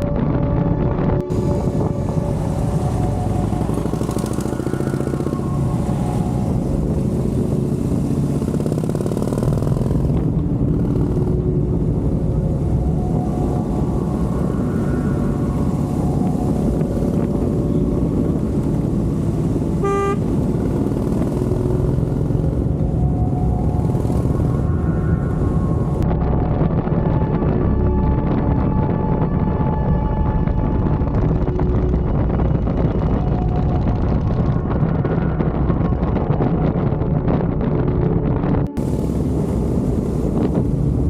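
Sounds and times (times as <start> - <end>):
motorcycle engine running: 1.3 - 13.7, 17.2 - 26.0
horn beep: 19.8 - 20.4.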